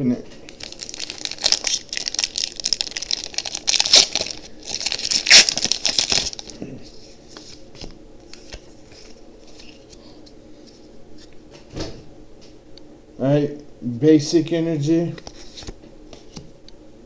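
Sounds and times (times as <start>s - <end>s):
foil wrapper crinkling and tearing: 0.5s - 6.6s.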